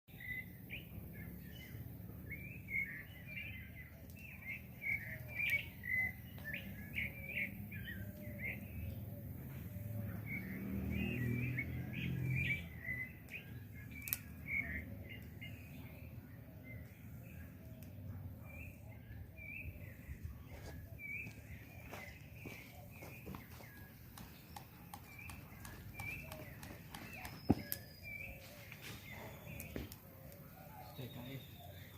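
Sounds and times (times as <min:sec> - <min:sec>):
small birds chirping: 0:00.1 - 0:31.9
sharp clicks: 0:14.0 - 0:14.3, 0:24.1 - 0:27.9.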